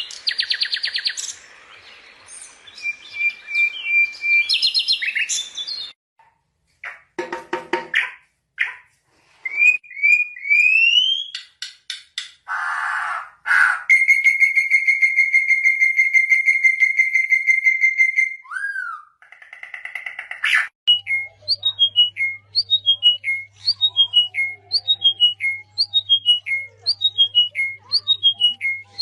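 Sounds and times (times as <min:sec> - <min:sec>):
bird trilling: 0:12.5 - 0:29.0.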